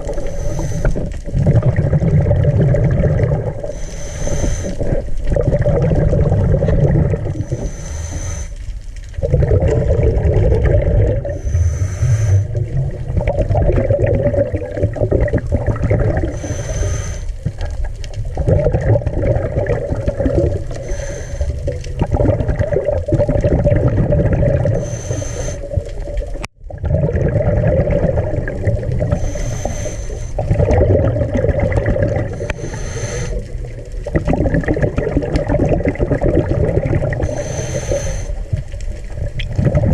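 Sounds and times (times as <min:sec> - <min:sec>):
scuba regulator breathing hiss: 0:00.0 - 0:01.1, 0:03.6 - 0:04.9, 0:07.4 - 0:08.7, 0:11.3 - 0:12.6, 0:16.3 - 0:17.4, 0:20.7 - 0:21.7, 0:24.8 - 0:25.8, 0:29.1 - 0:30.5, 0:32.3 - 0:33.5, 0:37.2 - 0:38.5
underwater bubbles rumble: 0:00.0 - 0:39.9.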